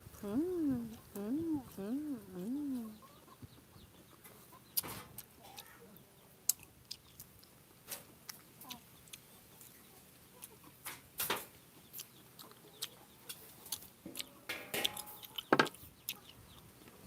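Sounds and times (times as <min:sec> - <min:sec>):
fruit being chewed: 0:00.1 - 0:03.0, 0:04.6 - 0:05.7, 0:06.4 - 0:10.9, 0:11.8 - 0:17.0
fruit rind cracking: 0:12.0 - 0:16.2.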